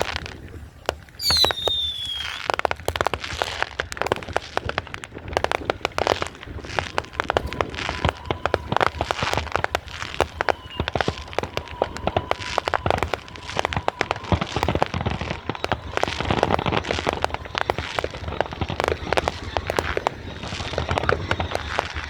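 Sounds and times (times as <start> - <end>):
fireworks cracking and popping: 0.0 - 22.0.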